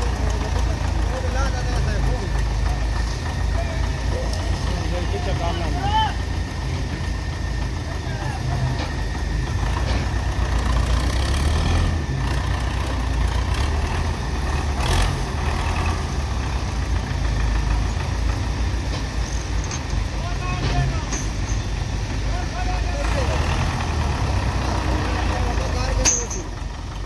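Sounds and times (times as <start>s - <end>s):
diesel engines idling: 0.0s - 27.0s
sharp metal clank: 26.0s - 26.6s.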